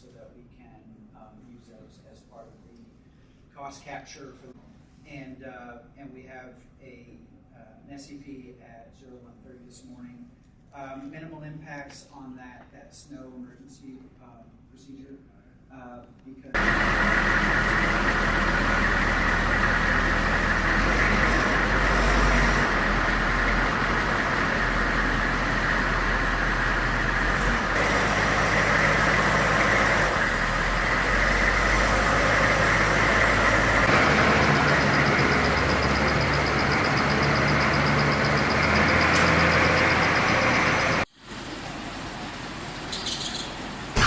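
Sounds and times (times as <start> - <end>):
vehicle engine running: 16.6 - 43.8.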